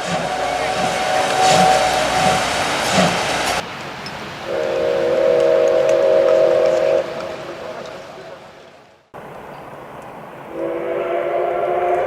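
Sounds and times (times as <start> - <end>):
steam locomotive whistle blast: 0.0 - 3.6, 4.5 - 7.4, 10.5 - 12.0
loud rushing hiss: 0.0 - 8.4.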